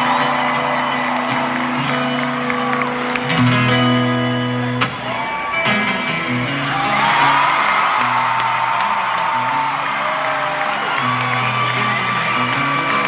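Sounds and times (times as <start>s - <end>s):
strummed acoustic guitar chords: 0.0s - 8.4s.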